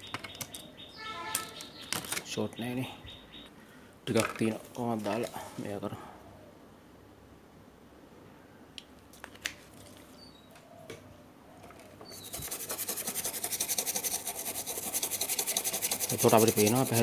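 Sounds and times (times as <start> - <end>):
rapid rhythmic scraping: 12.2 - 17.0.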